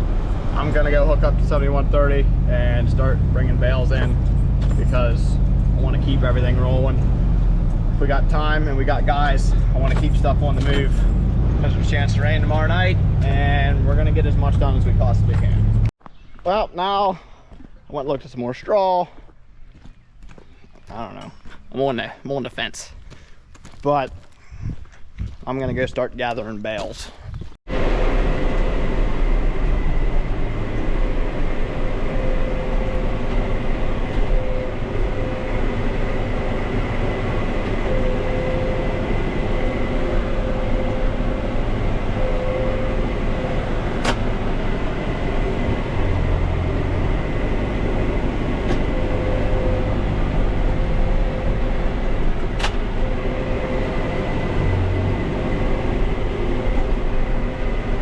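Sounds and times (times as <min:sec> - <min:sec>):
steady whine: 0:00.0 - 0:15.9, 0:27.7 - 0:58.0
tractor engine droning: 0:00.0 - 0:15.9, 0:27.7 - 0:58.0.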